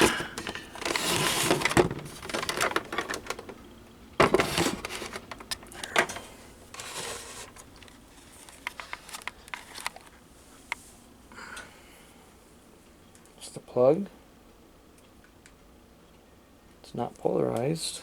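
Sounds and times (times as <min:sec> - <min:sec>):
plastic clicks and rustling: 0:00.0 - 0:10.8.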